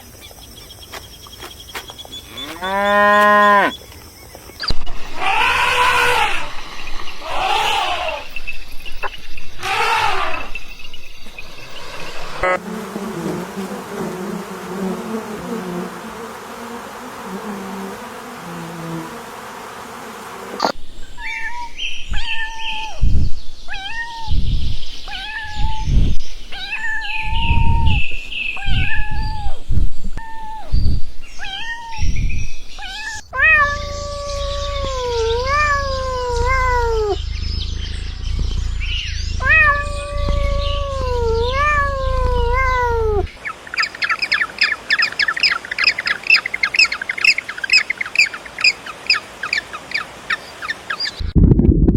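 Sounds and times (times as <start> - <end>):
cat meowing: 32.8 - 37.2, 39.4 - 43.3.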